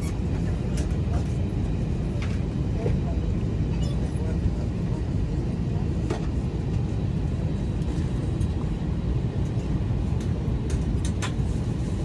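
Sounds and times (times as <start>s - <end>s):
jet engines low rumble in cabin: 0.0s - 12.0s.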